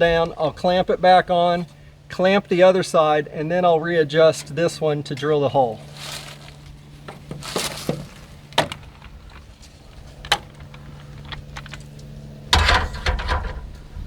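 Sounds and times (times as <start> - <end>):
rustling: 5.6 - 12.0.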